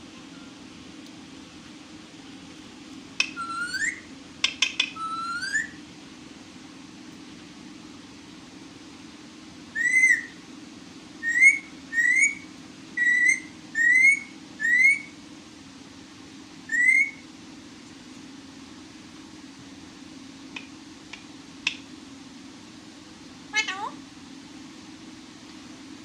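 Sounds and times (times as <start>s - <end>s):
parrot whistling: 3.2s - 4.1s, 4.9s - 5.8s, 9.7s - 10.4s, 11.2s - 15.2s, 16.7s - 17.2s.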